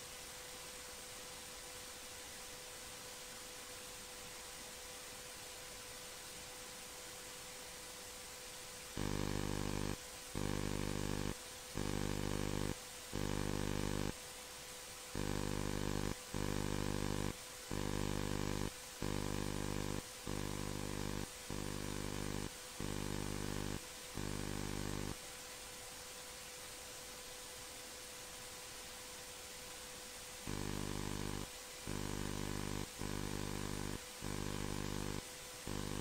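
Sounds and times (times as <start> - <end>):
low electrical buzz: 0.0 - 36.0
steady hiss: 0.0 - 36.0
thin high hum: 9.0 - 14.2, 15.2 - 25.2, 30.4 - 36.0.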